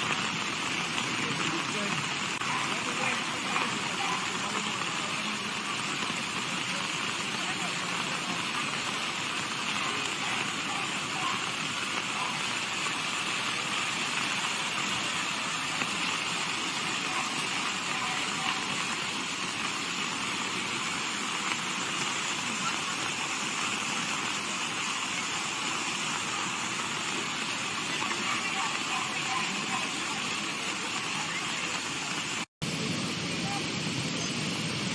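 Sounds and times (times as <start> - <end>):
rushing floodwater: 0.0 - 34.9.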